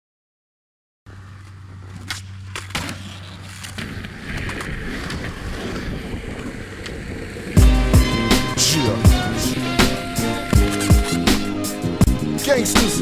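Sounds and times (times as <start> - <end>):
skateboards rolling: 1.1 - 13.0
skateboard clacks: 1.4 - 7.6.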